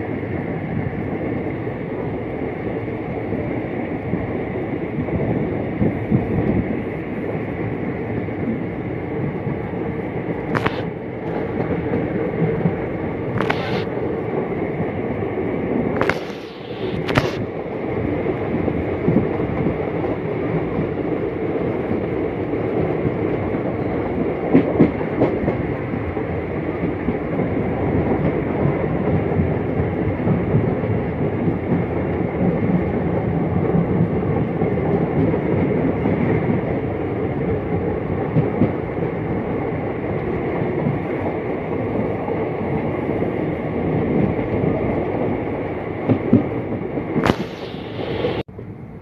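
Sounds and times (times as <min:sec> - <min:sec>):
train wheels rumbling on track: 0:00.0 - 0:49.0
clacks at rail joints: 0:10.5 - 0:13.9, 0:24.5 - 0:27.3, 0:37.7 - 0:39.4, 0:46.0 - 0:47.8
brief harsh noise: 0:13.4 - 0:13.9, 0:47.2 - 0:48.4.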